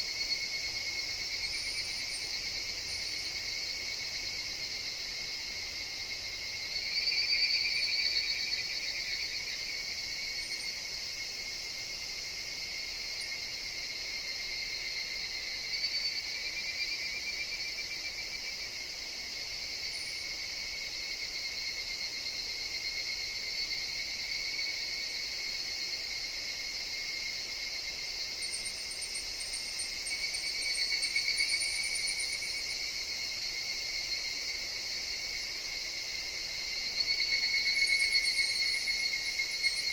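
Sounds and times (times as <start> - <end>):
cicadas trilling in chorus: 0.0 - 39.9.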